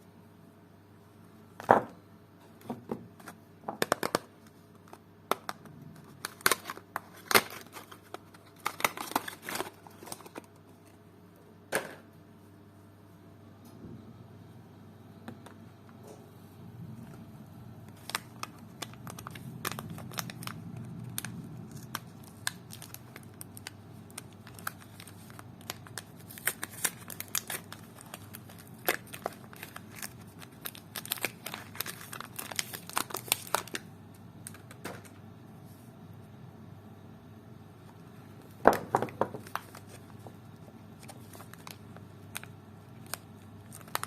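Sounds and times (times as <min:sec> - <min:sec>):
wrappers crinkling and tearing: 0:06.0 - 0:10.5, 0:17.9 - 0:34.6, 0:39.4 - 0:40.1, 0:41.0 - 0:44.0.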